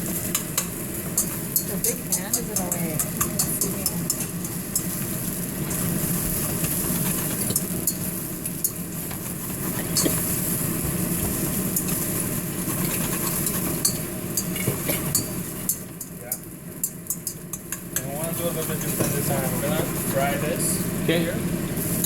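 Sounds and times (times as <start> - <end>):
onion and garlic sizzling in a pan: 0.0 - 22.0
utensil clicking against pan: 0.3 - 5.0, 12.8 - 19.1.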